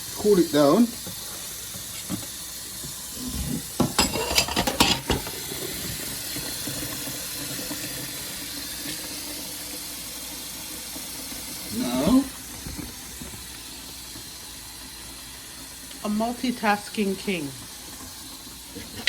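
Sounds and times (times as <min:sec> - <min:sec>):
tap running water: 0:00.0 - 0:19.0.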